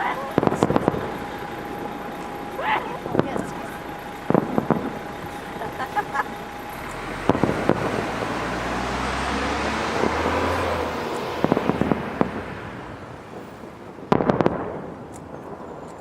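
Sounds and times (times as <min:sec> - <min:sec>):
sharp firework cracks: 0:00.0 - 0:05.6, 0:06.7 - 0:08.6, 0:11.0 - 0:16.0
distant fireworks rumble: 0:00.0 - 0:16.0
firework bangs: 0:00.0 - 0:16.0.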